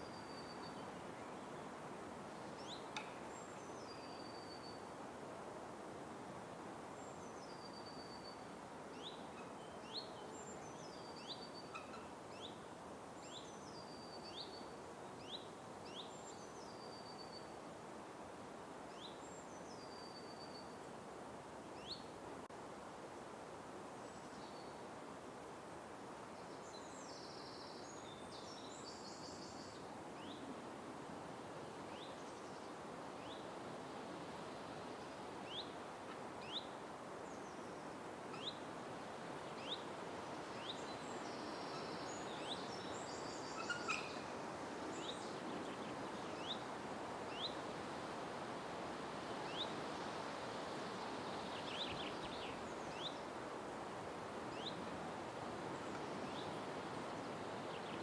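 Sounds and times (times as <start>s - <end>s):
soft background hiss: 0.0s - 58.0s
busy bird song: 51.0s - 53.3s, 55.7s - 58.0s.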